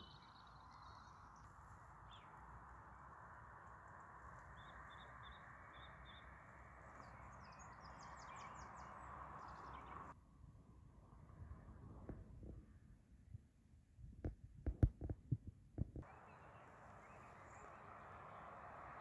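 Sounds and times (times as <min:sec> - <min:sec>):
small birds chirping: 0:00.0 - 0:10.2, 0:16.0 - 0:19.0.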